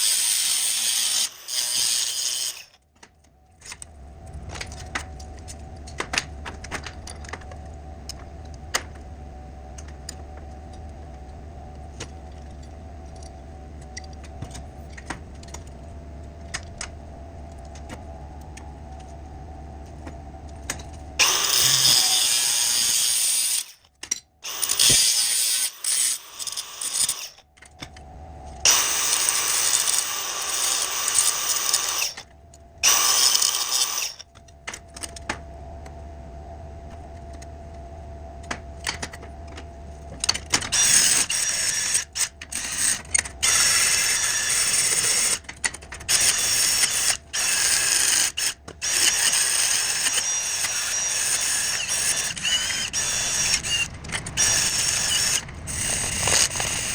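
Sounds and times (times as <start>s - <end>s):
power tool on metal: 0.0s - 2.8s, 21.2s - 23.8s, 24.4s - 27.4s, 28.7s - 32.2s, 32.8s - 34.2s, 40.7s - 56.9s.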